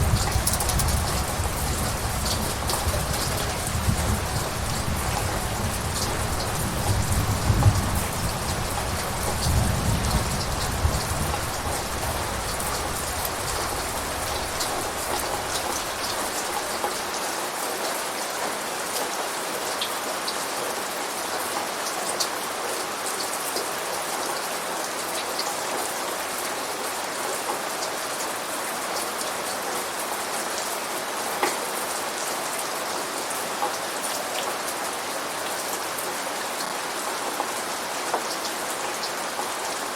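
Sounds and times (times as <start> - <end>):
low rumble of thunder: 0.0 - 16.6
steady rain: 0.0 - 39.9.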